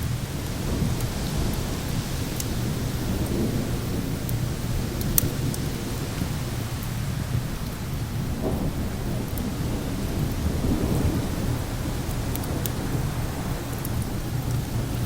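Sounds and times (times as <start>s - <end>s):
thunder rumble: 0.0s - 15.0s
wind: 0.0s - 15.0s
wood fire crackling and popping: 0.0s - 15.0s.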